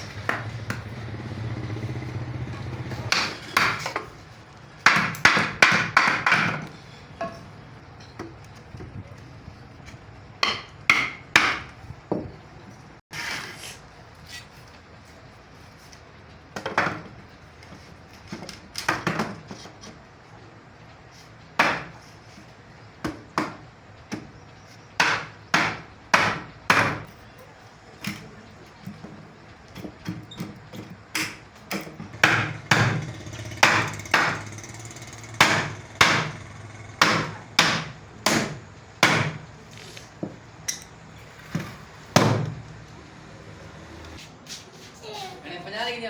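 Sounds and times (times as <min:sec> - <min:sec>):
hammer driving nails into wood: 0:31.1 - 0:39.4.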